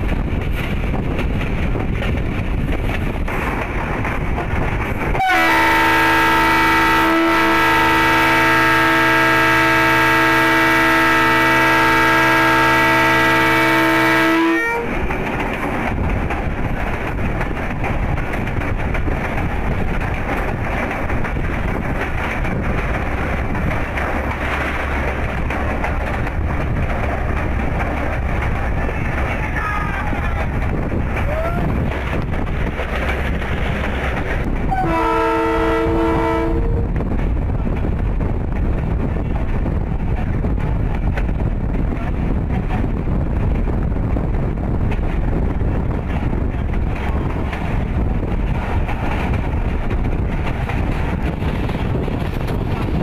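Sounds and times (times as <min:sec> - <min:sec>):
train running on track: 0:00.0 - 0:53.0
train horn blast: 0:05.2 - 0:14.9, 0:34.7 - 0:37.0.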